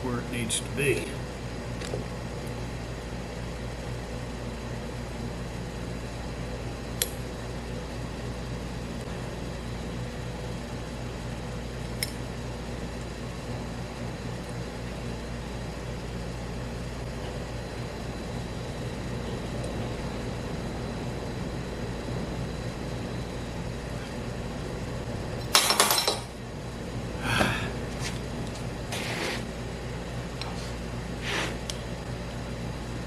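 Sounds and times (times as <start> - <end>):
shop equipment humming: 0.0 - 33.0.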